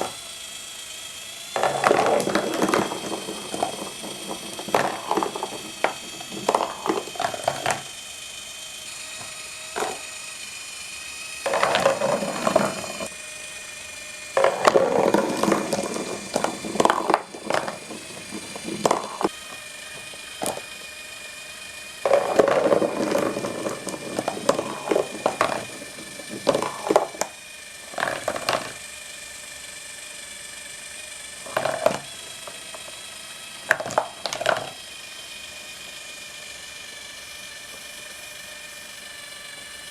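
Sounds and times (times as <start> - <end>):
electric motor whine: 0.0 - 39.9
marbles rolling and clattering: 1.5 - 8.0, 9.2 - 10.2, 11.4 - 13.1, 14.3 - 21.2, 22.0 - 28.9, 31.4 - 34.9.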